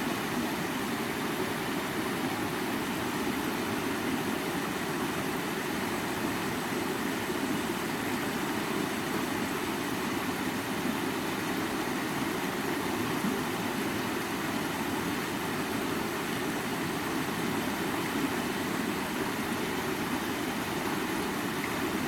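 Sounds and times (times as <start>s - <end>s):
stream water flowing: 0.0s - 22.0s.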